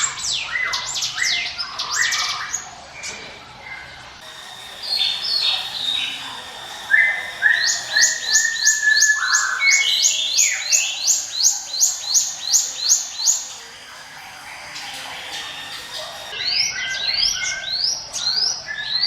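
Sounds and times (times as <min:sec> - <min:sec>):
bird singing whistled notes: 0:04.2 - 0:19.0.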